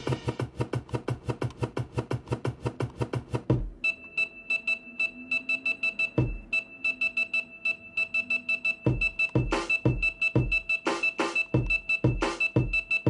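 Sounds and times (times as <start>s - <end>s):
electronic hip hop beat: 0.0s - 3.9s, 4.5s - 13.0s
deep kick drum: 3.2s - 3.8s, 6.2s - 6.5s, 8.9s - 10.6s, 11.6s - 12.8s.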